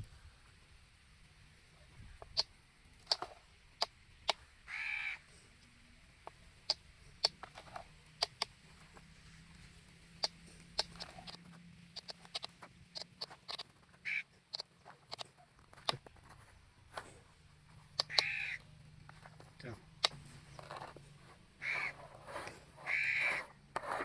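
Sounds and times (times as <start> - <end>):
harsh bird call: 18.0 - 18.7, 21.6 - 22.0, 22.8 - 23.5.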